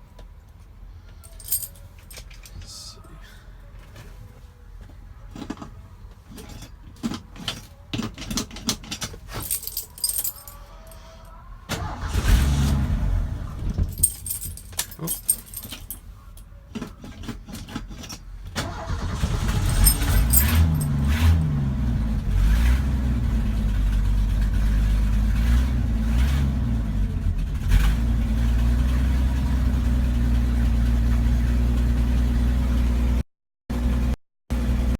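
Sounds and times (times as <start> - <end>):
truck engine starting and idling: 11.6 - 14.1, 18.6 - 34.9.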